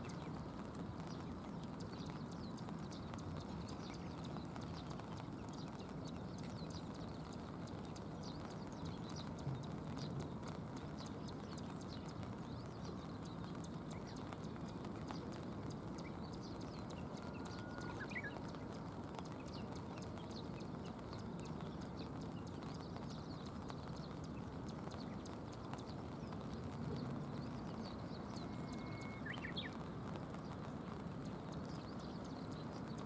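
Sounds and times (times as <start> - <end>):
rain falling on a river: 0.0 - 33.0
faint high chirps: 1.8 - 33.0
short whistled notes: 28.5 - 29.3.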